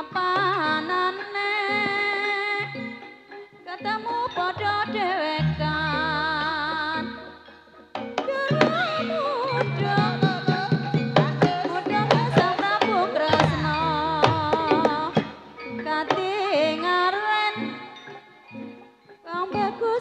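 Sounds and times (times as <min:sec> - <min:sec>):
woman singing ornamented melody: 0:00.0 - 0:18.6, 0:19.2 - 0:20.0
sustained metallic tones: 0:02.6 - 0:08.0
hand drum strokes: 0:08.2 - 0:16.4.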